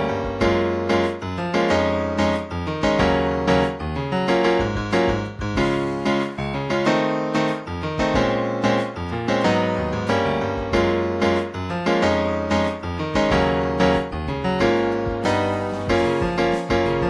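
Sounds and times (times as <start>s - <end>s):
piano-toned keyboard chords: 0.0s - 17.0s
low bass line: 2.6s - 6.6s, 12.4s - 17.0s.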